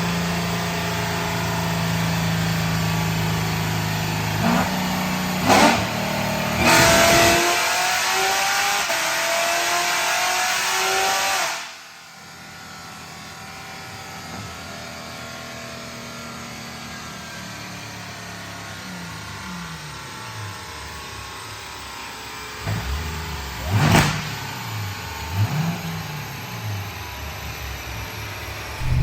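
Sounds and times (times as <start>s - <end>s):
car engine revving at full throttle: 0.1s - 11.8s, 22.6s - 29.0s.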